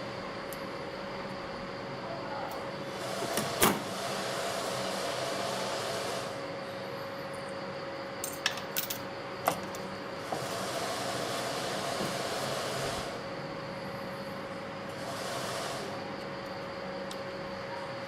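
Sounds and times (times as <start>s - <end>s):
electric blower hum and hiss: 2.8s - 6.6s, 10.2s - 13.4s, 14.9s - 16.2s.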